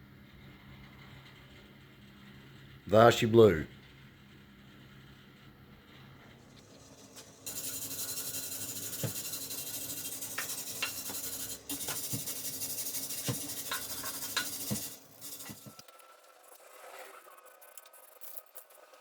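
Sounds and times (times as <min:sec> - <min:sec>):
welding arc crackling: 0:07.5 - 0:15.8.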